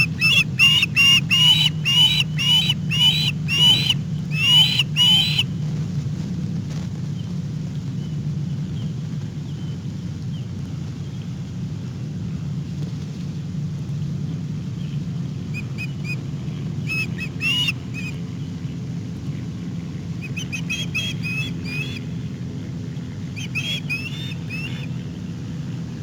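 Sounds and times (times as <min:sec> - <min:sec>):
bird chirping: 0:00.0 - 0:05.4, 0:16.8 - 0:18.2, 0:20.2 - 0:22.0, 0:23.3 - 0:25.0
steady low rumble: 0:00.0 - 0:26.0.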